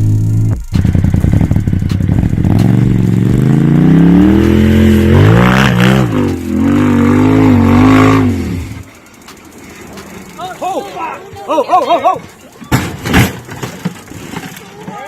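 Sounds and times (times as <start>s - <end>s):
off-road vehicle engine revving: 0.0s - 9.0s.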